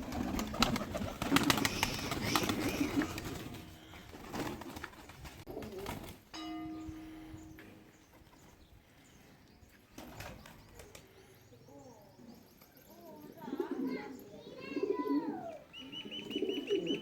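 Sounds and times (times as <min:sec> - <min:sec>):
pigeons cooing: 0:00.0 - 0:04.9, 0:05.5 - 0:06.2, 0:10.0 - 0:17.0
steady low tone: 0:06.3 - 0:08.5.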